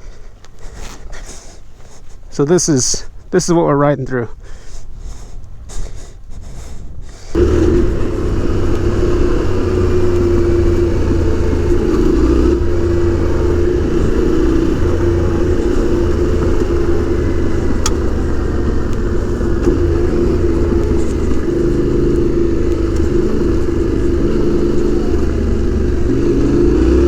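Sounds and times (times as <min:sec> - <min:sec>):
motorcycle engine running: 0:07.3 - 0:27.0.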